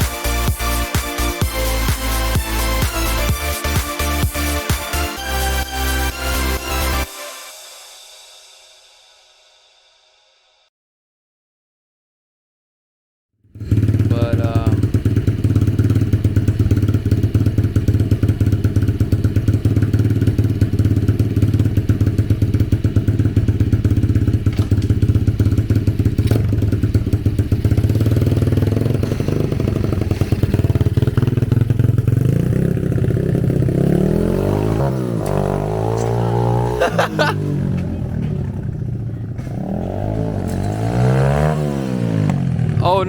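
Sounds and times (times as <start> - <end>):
dirt bike engine idling: 13.6 - 43.0.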